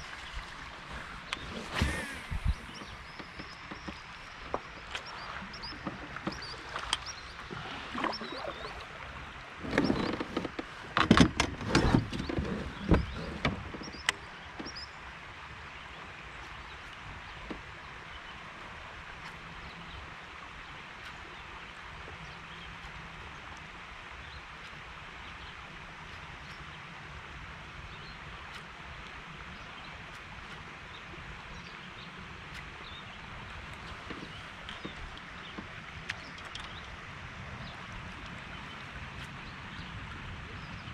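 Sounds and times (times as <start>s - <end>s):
knocks and clatter in kayak: 0.0s - 18.2s, 27.9s - 40.9s.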